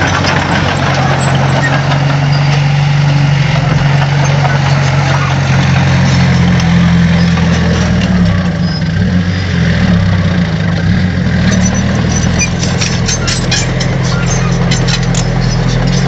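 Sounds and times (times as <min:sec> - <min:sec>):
diesel engine running: 0:00.0 - 0:16.0
sharp clicks and cracks: 0:12.2 - 0:16.0.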